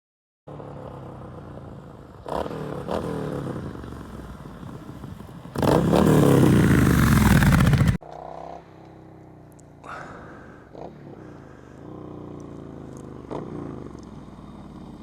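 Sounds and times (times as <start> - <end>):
motorcycle engine revving: 0.5 - 15.0
motorcycle engine idling: 3.4 - 15.0.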